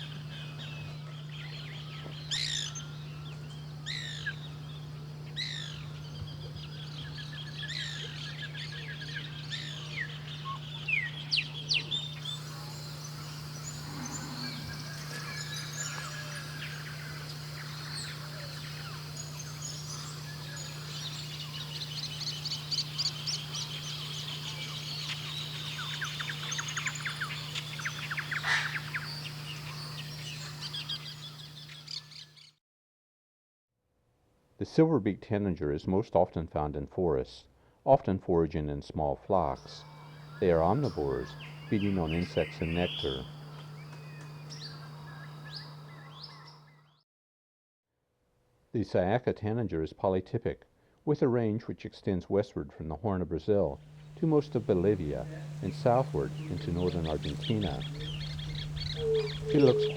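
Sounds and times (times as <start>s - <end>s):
steady low hum: 0.0s - 32.3s, 39.4s - 46.9s, 53.6s - 59.9s
wild birds calling and singing: 0.0s - 32.5s, 39.5s - 47.0s, 53.8s - 59.9s.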